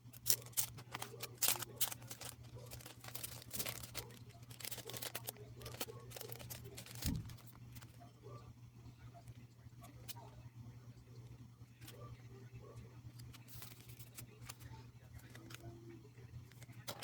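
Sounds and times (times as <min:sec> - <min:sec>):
paper and plastic rustling: 0:00.0 - 0:08.0, 0:13.2 - 0:15.8, 0:16.5 - 0:17.0.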